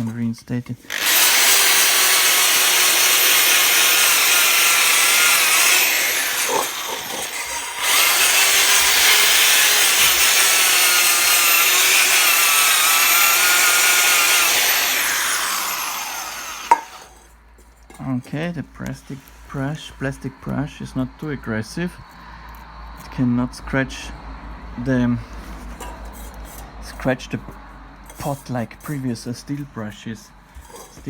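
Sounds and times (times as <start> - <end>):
electric drill motor whine: 0.9 - 17.2
brush scrubbing metal pot: 28.1 - 29.2, 30.6 - 31.0.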